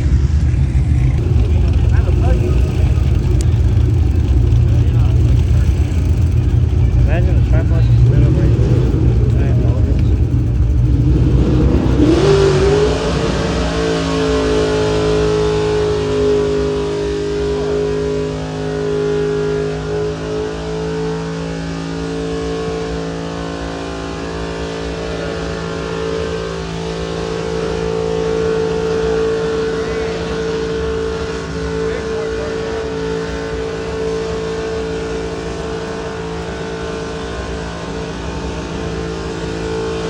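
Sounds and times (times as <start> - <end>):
truck engine revving: 0.0 - 40.0.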